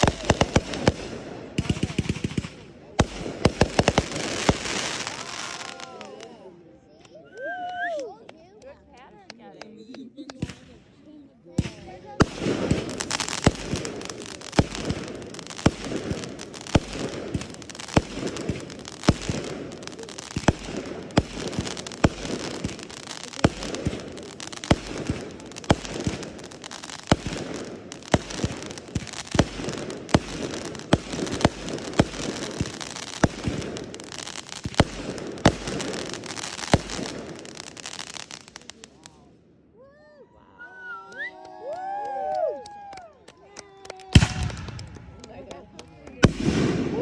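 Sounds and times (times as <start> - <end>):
fireworks bangs: 0.0 - 6.4, 11.6 - 39.2, 44.0 - 47.0
fireworks crackling: 0.0 - 6.5, 8.4 - 39.3, 43.5 - 47.0.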